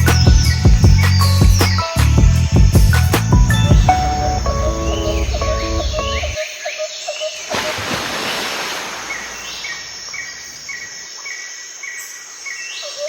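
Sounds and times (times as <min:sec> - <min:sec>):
lower bird chirps: 0:00.0 - 0:06.4.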